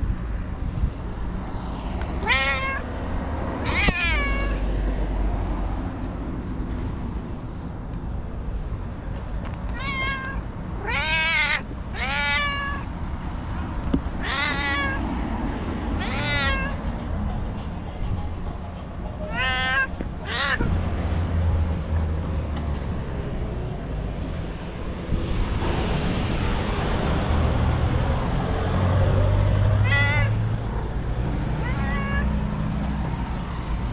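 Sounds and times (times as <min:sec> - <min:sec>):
cat meowing: 0:02.2 - 0:02.9, 0:03.6 - 0:04.6, 0:09.7 - 0:12.9, 0:14.2 - 0:15.2, 0:16.0 - 0:16.8, 0:19.2 - 0:20.8, 0:29.7 - 0:30.8, 0:31.4 - 0:32.5.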